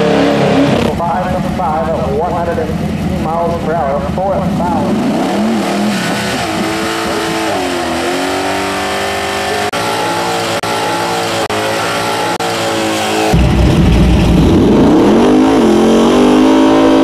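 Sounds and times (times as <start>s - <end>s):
deeper engine sound: 0.0s - 8.4s, 13.1s - 17.0s
car engine at high revs: 0.0s - 17.0s.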